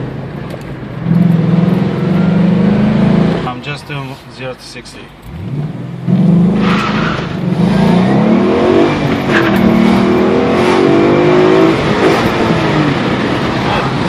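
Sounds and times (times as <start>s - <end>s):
car engine accelerating hard: 1.0s - 3.5s, 5.3s - 14.0s.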